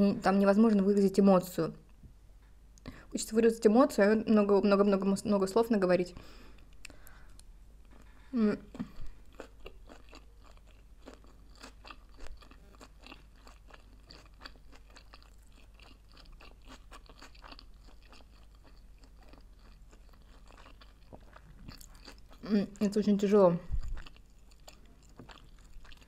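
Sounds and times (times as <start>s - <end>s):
wet crunchy chewing: 8.8s - 22.9s, 23.7s - 26.0s.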